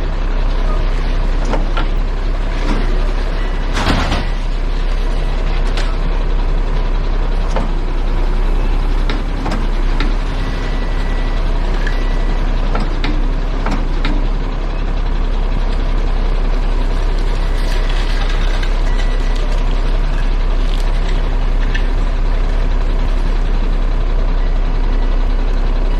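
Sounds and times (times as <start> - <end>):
heavy truck engine rumbling: 0.0 - 25.9.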